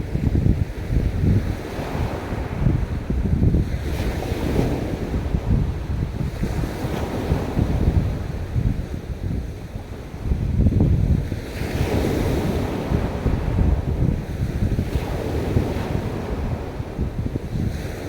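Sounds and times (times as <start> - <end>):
waves washing onto beach: 0.0 - 18.0
wind buffeting microphone: 0.0 - 18.0.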